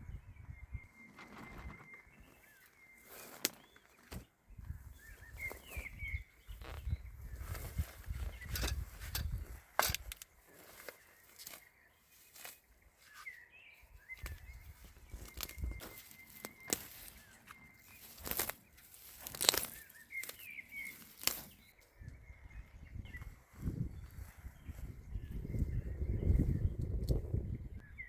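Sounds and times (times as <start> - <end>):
bird chirps: 0.0 - 28.0
clicks and knocks from handling gear: 7.5 - 11.7, 15.2 - 21.9.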